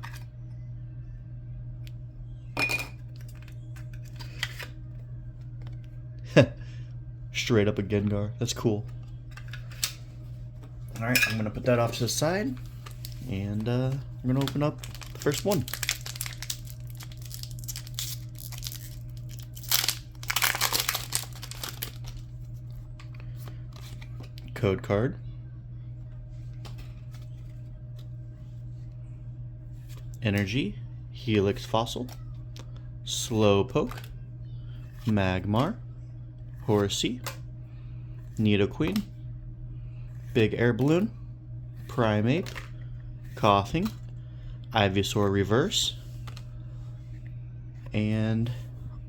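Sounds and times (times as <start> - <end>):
foil wrapper crinkling and ripping: 12.5 - 13.3, 14.2 - 22.2.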